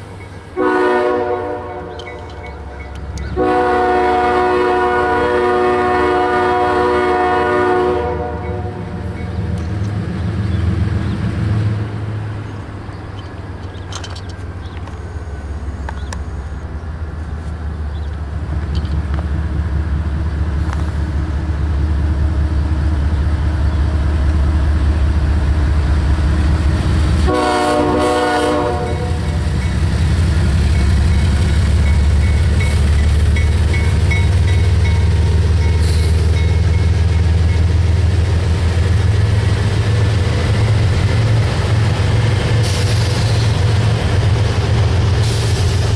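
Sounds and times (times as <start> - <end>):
diesel locomotive engines rumbling: 0.0 - 45.9
train air horn: 0.6 - 2.2, 3.4 - 9.0, 27.2 - 29.4.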